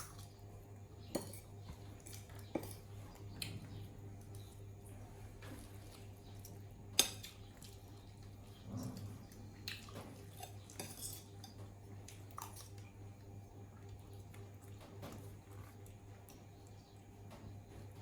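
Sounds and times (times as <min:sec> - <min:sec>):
low steady hum: 0:00.0 - 0:18.0
dishes and cutlery clinking: 0:01.1 - 0:02.8, 0:09.9 - 0:11.6.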